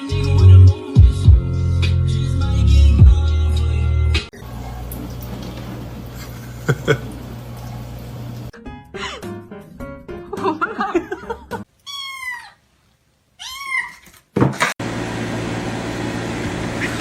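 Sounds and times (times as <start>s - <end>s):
cat meowing: 11.8s - 12.6s, 13.4s - 14.1s.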